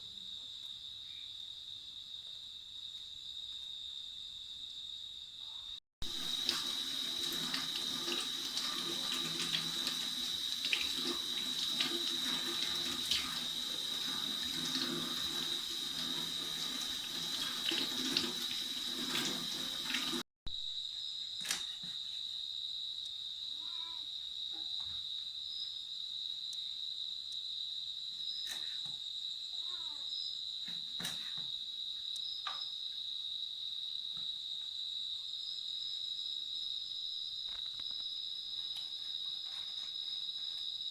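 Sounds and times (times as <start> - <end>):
water running from a tap: 6.0 - 20.2
high-pitched insect chorus: 31.6 - 40.9.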